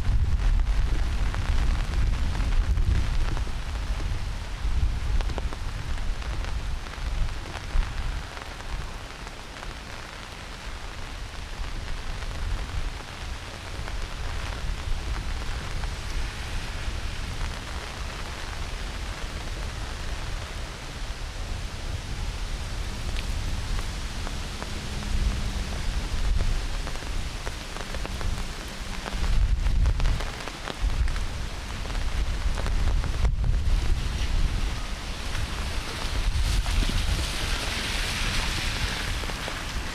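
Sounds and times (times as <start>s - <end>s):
deep low rumble: 0.0s - 8.0s
heavy rain on foliage: 0.0s - 39.9s.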